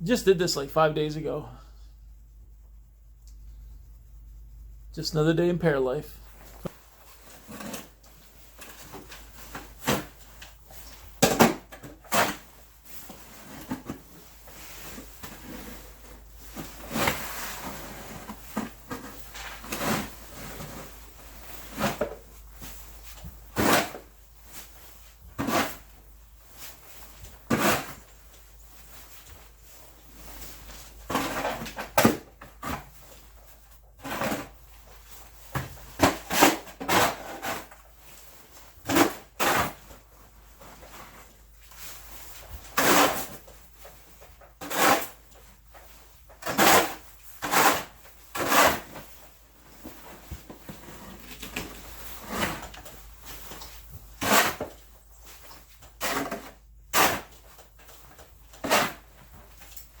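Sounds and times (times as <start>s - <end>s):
snow shovel scraping: 46.5s - 49.0s.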